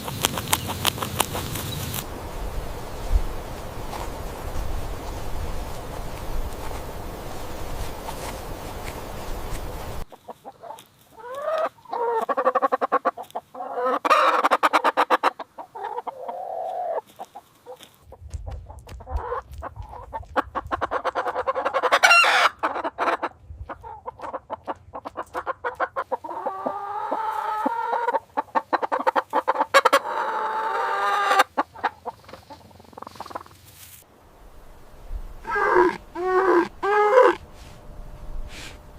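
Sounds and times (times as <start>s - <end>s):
chickens clucking: 0.0s - 33.8s, 35.3s - 37.7s.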